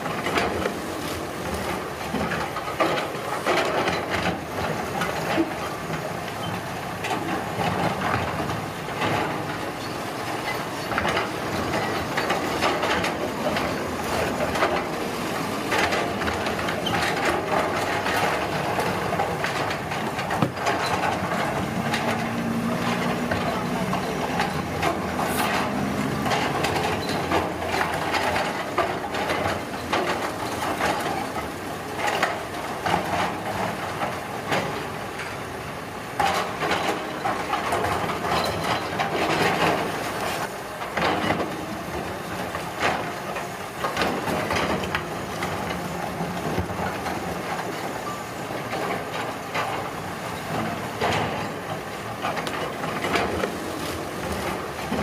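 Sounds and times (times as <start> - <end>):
knocks and clatters of material: 0.0 - 35.4, 36.1 - 55.0
machinery engine rumble: 1.3 - 34.3.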